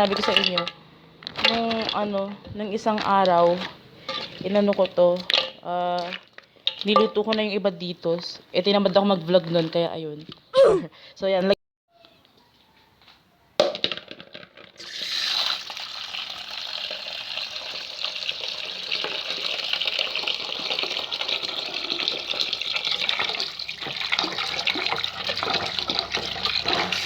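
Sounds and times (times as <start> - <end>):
water tap running into sink: 14.8 - 27.0.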